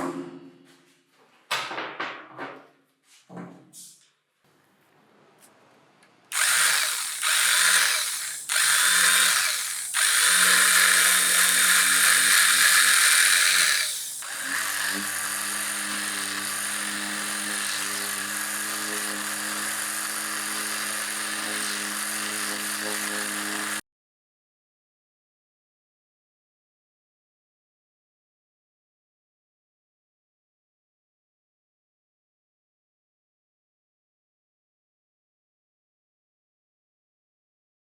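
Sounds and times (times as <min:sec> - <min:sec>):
electric motor humming: 0:06.3 - 0:23.8.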